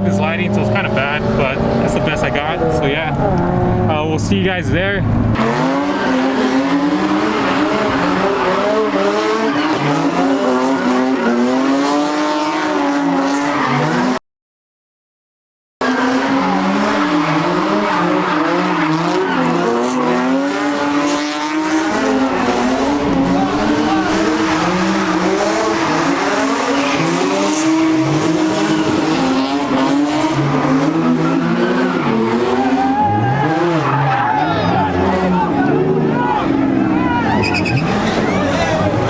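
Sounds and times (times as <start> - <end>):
car engine revving hard: 0.0 - 14.2, 15.8 - 39.0
tyres squealing: 21.8 - 39.0.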